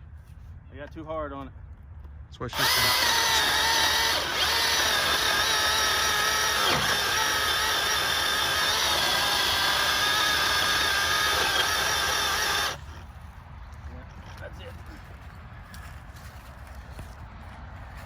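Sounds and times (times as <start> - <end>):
electric chainsaw cutting log: 2.5 - 13.0.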